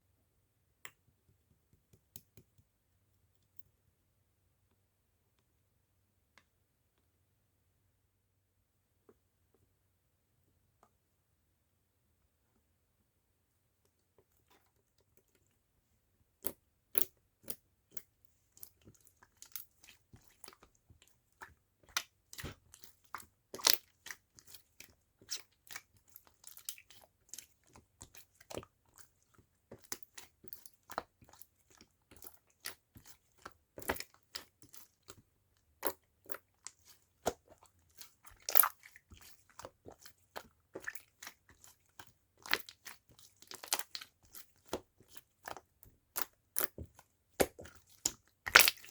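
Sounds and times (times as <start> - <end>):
slime crackling: 42.5 - 48.9
slime clicking and popping: 47.4 - 48.9.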